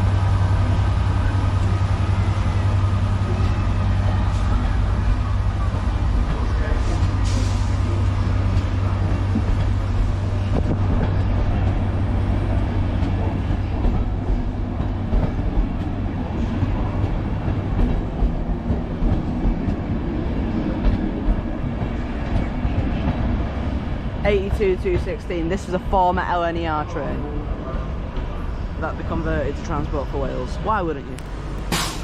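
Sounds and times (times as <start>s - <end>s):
diesel locomotive drone: 0.0s - 32.0s
train wheels clicking over rails: 31.2s - 32.0s.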